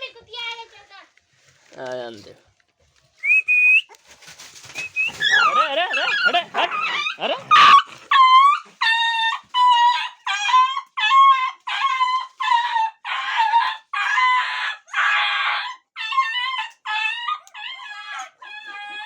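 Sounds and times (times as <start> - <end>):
puppy yelping whines: 4.7 - 19.0.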